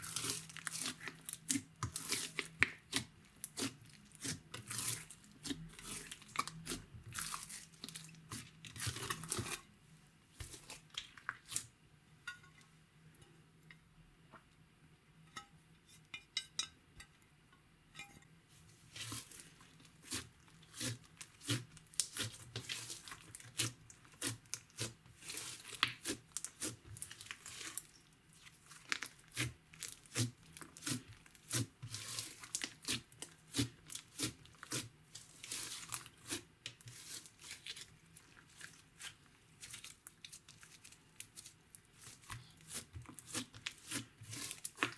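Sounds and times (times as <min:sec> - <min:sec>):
slime kneaded with wet pops: 0:00.0 - 0:09.7, 0:18.9 - 0:44.9.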